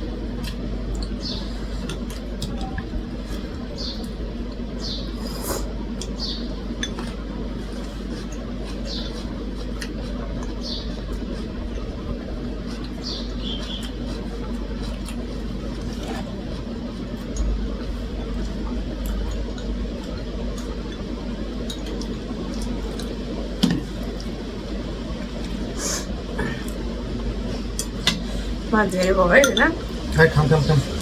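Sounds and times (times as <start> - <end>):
steady low hum: 0.0 - 31.0
chewing with wet mouth clicks: 5.9 - 7.2, 8.0 - 17.6, 18.2 - 23.3, 24.0 - 24.4.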